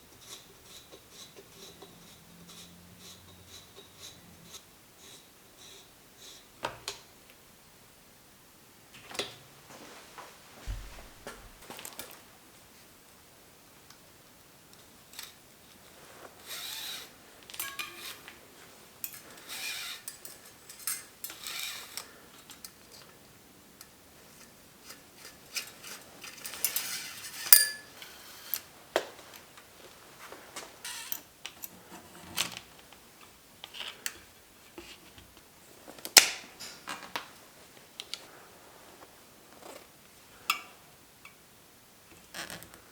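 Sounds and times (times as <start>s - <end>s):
metal tools clinking: 17.5s - 18.3s, 19.0s - 22.8s, 25.5s - 28.6s.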